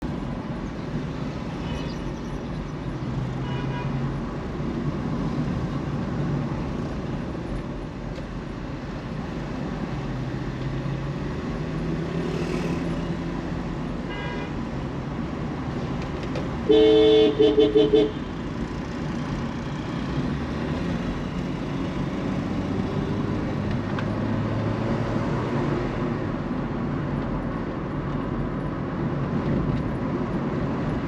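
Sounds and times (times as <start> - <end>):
street traffic noise: 0.0 - 31.0
car horn toots: 16.6 - 18.2.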